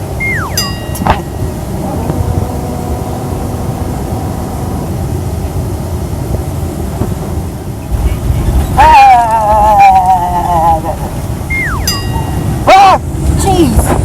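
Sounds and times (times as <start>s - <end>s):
high ringing tone: 0.0s - 5.4s, 11.5s - 12.5s
falling tone: 0.0s - 5.6s
airliner cabin rumble: 0.0s - 14.0s.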